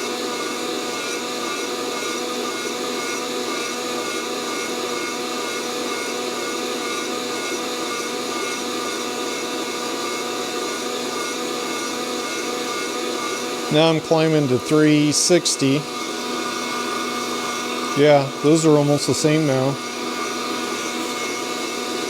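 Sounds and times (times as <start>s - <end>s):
coffee roaster fan rushing: 0.0s - 22.0s
motor hum: 10.6s - 22.0s.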